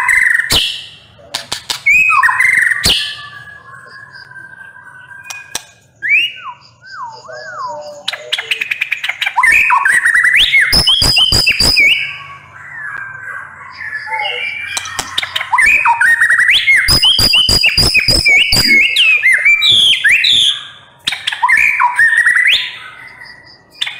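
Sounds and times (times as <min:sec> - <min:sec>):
bird clicks and chattering: 0:01.3 - 0:02.0, 0:05.2 - 0:05.9, 0:14.7 - 0:16.0
bird singing whistled phrases: 0:01.9 - 0:23.9.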